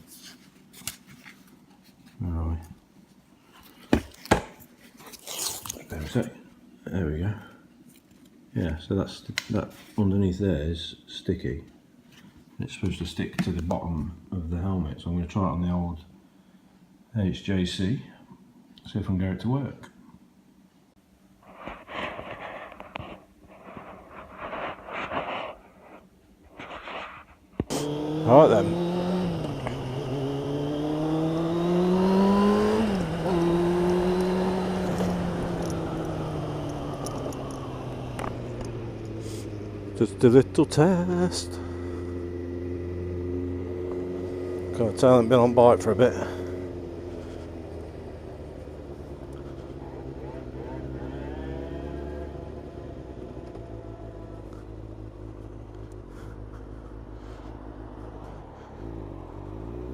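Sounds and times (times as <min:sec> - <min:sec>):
motorcycle engine accelerating: 0:27.6 - 0:59.9.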